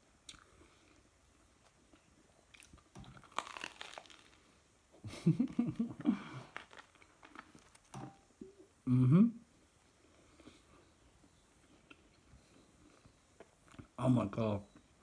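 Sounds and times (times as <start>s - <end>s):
person chewing crunchy crust: 0.2s - 4.6s, 5.8s - 7.9s
muffled hum from closed mouth: 8.4s - 14.0s.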